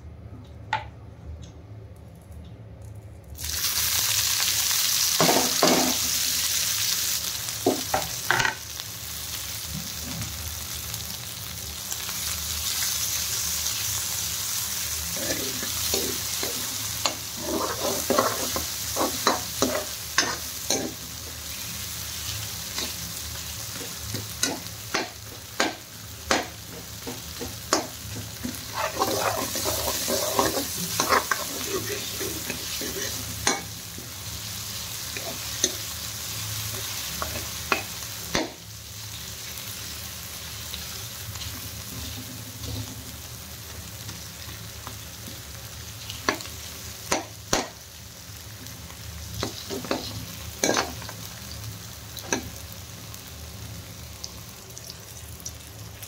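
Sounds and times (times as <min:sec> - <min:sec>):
onions sizzling in a pan: 0:03.4 - 0:56.0
metal spoon scraping a pan: 0:15.4 - 0:20.9, 0:28.6 - 0:33.6.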